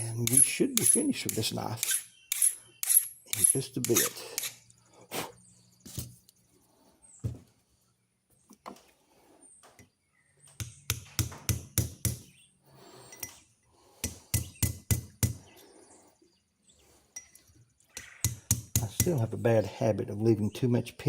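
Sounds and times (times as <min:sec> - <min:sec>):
small hammer tapping metal pins: 0:00.0 - 0:02.0.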